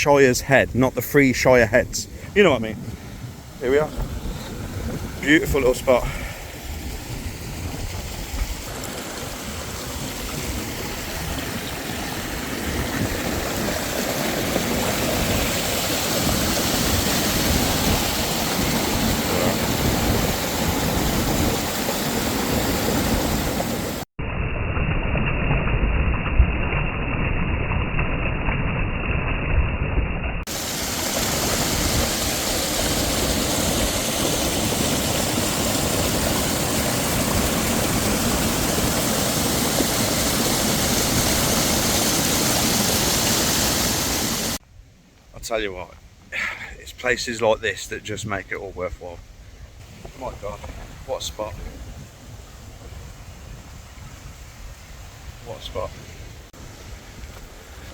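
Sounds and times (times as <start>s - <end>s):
water rushing over rocks: 0.0s - 24.1s, 30.5s - 44.6s.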